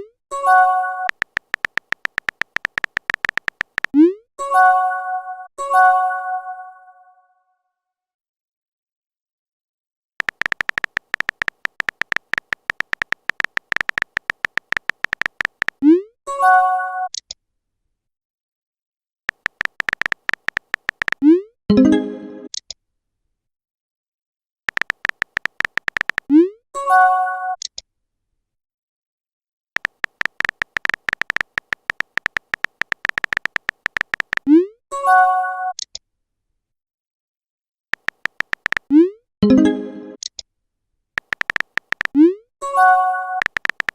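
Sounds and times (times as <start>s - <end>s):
phone keyboard tap clicks: 1.1s - 3.9s, 10.2s - 15.8s, 19.3s - 21.2s, 24.7s - 26.3s, 29.8s - 34.5s, 38.0s - 38.9s, 41.2s - 42.2s, 43.4s - 43.9s.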